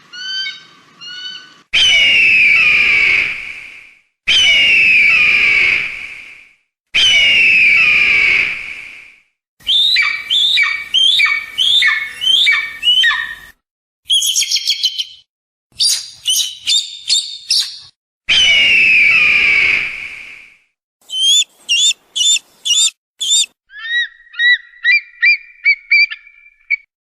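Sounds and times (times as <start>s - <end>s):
bird of prey screaming: 0.1s - 3.4s, 4.3s - 5.9s, 7.0s - 8.6s, 9.6s - 13.5s, 18.3s - 19.9s, 21.1s - 26.9s
rapid high bird chips: 21.0s - 23.6s
short down-slurred bird cries: 21.1s - 26.9s.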